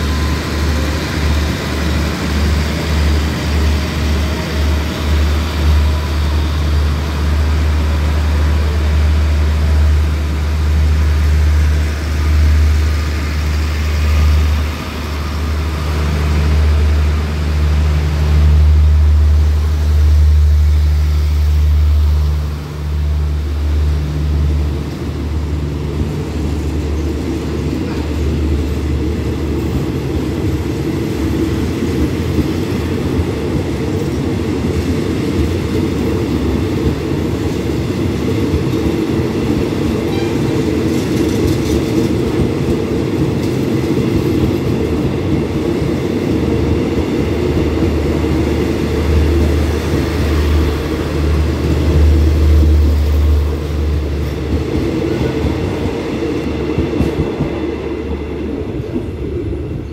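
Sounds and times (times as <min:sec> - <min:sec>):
train coaches rumbling past: 0:00.0 - 0:59.9.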